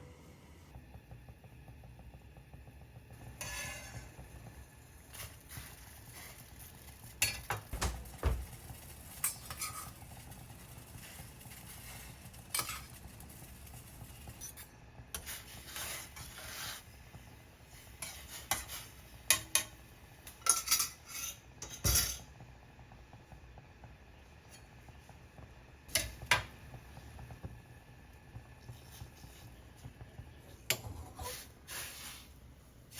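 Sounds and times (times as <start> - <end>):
utensils and dishes clinking: 7.2 - 10.3, 18.5 - 22.3.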